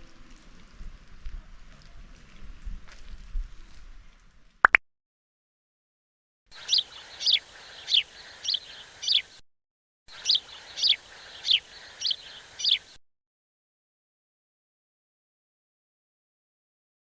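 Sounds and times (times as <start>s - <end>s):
bird chirping downward: 6.6s - 9.4s, 10.1s - 13.0s.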